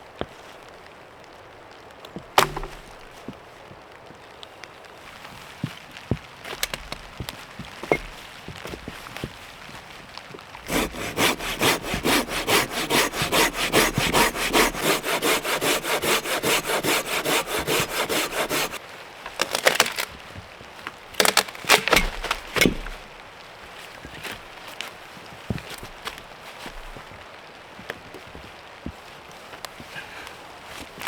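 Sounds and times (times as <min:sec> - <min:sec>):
hand saw cutting wood: 0:02.4 - 0:02.9, 0:07.8 - 0:08.1, 0:10.6 - 0:18.8.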